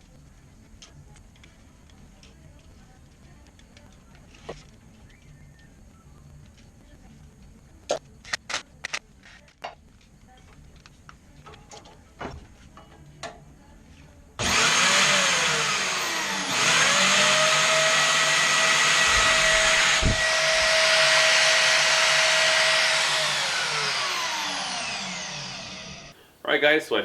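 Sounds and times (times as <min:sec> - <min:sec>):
power tool motor whining: 0:14.4 - 0:26.1.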